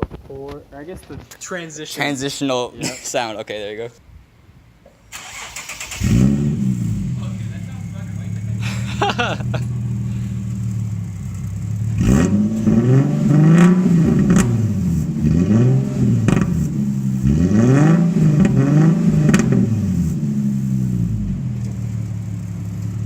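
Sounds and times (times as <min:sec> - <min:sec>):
exhaust crackles and pops: 0:00.0 - 0:01.4, 0:09.2 - 0:23.0
car engine revving: 0:05.2 - 0:23.0.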